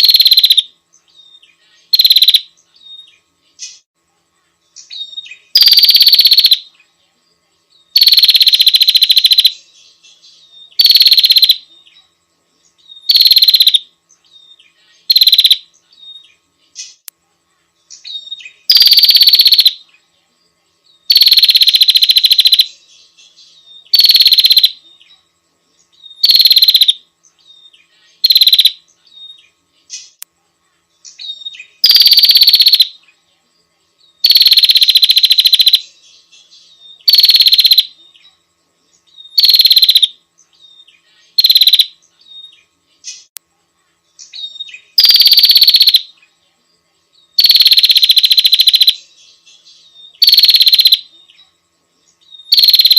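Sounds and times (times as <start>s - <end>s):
bird buzzy pulsing call: 0.0s - 3.9s, 4.8s - 6.7s, 7.9s - 12.0s, 12.8s - 17.0s, 17.9s - 19.9s, 21.1s - 22.8s, 23.5s - 25.1s, 26.0s - 30.2s, 31.1s - 33.0s, 34.2s - 38.2s, 39.1s - 43.3s, 44.2s - 46.2s, 47.4s - 49.1s, 49.9s - 51.1s, 52.4s - 52.9s.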